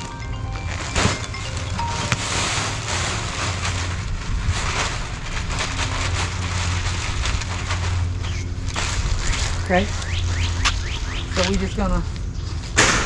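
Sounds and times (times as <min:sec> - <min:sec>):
steady low rumble: 0:00.0 - 0:13.0
rake scraping through mulch: 0:00.8 - 0:10.7.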